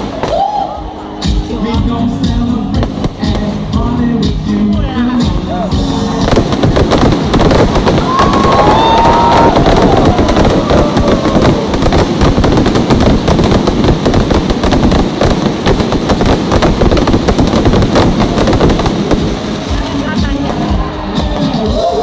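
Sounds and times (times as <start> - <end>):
fireworks crackling and banging: 0.0 - 22.0
firework whistle: 6.7 - 19.7.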